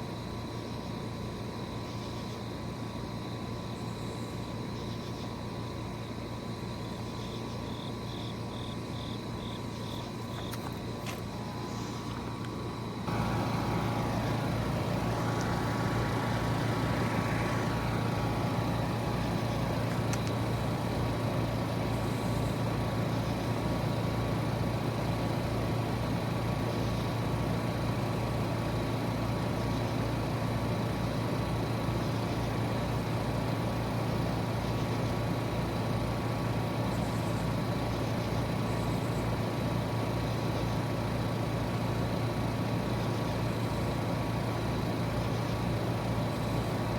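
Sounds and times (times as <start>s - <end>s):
compressor and fan hum: 0.0s - 46.9s
sweeping whine: 11.2s - 22.6s.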